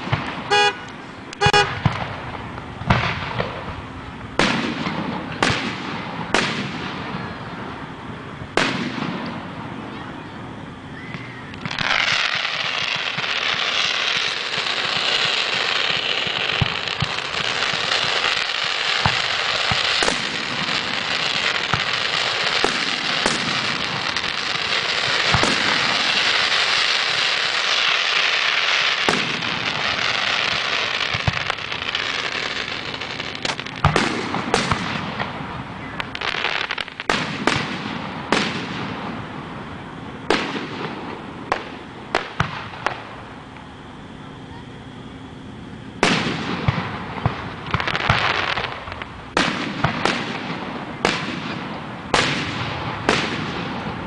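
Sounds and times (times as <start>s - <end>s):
firework fountain hissing: 0.0s - 54.0s
firework shells cracking and banging: 11.1s - 35.4s.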